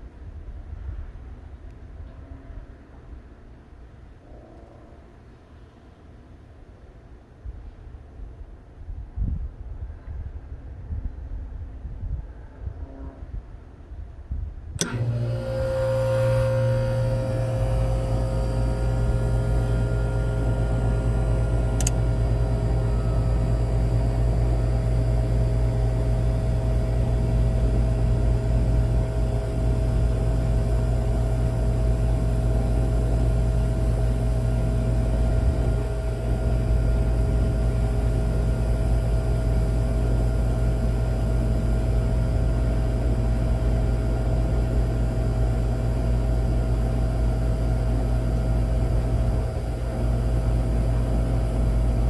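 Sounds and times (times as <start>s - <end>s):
sharp click: 14.8s - 23.2s
air conditioner unit humming: 14.8s - 52.0s.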